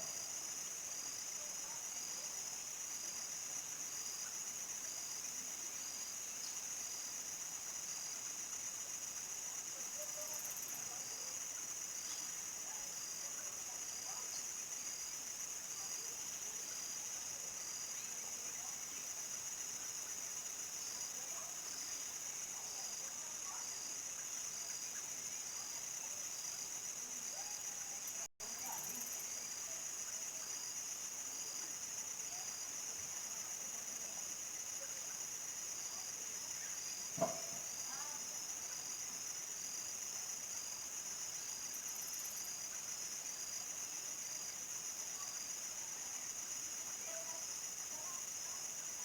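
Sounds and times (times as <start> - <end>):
crickets chirring: 13.9 - 49.0.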